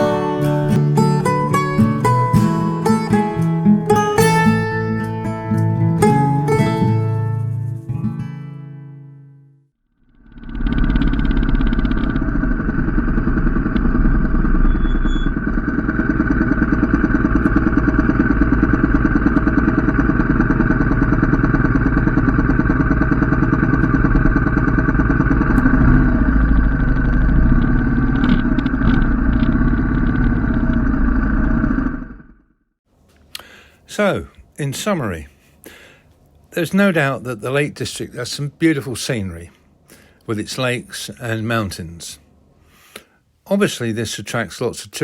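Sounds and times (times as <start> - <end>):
motorcycle engine running: 10.0 - 32.8.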